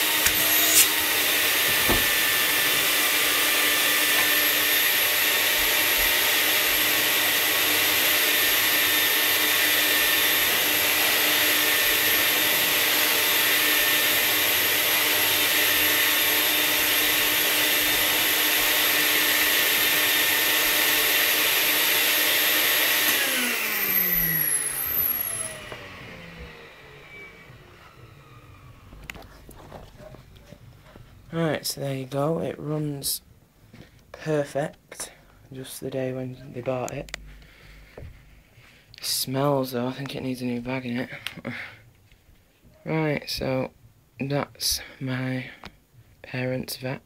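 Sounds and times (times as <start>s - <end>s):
vacuum cleaner motor running: 0.0s - 30.2s.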